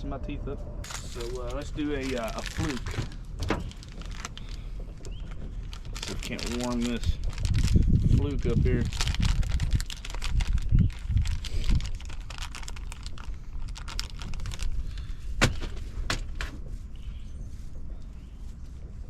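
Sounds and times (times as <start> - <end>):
low handling rumble: 0.0 - 19.0.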